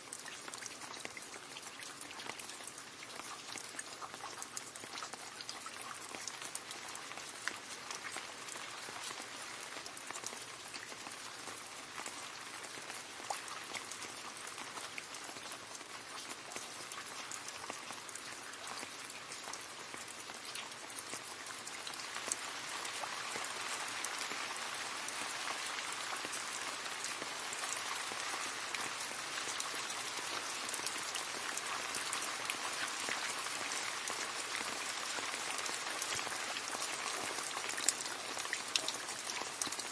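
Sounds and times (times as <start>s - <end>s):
rain splashing into a puddle: 0.0s - 39.9s.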